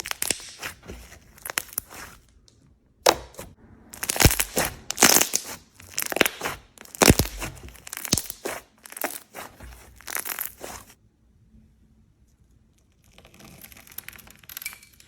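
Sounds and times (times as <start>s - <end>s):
slime being squeezed: 0.0s - 2.2s, 3.1s - 11.0s.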